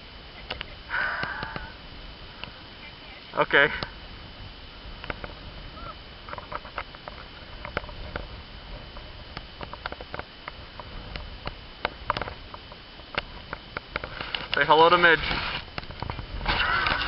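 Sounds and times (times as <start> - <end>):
wind rumble on microphone: 0.0 - 17.0
crunching in deep snow: 14.0 - 17.0.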